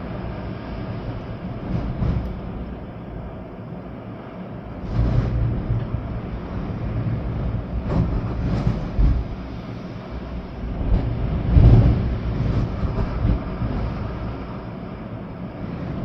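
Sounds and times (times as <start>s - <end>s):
rain: 0.0s - 16.0s
wind buffeting microphone: 0.0s - 16.0s.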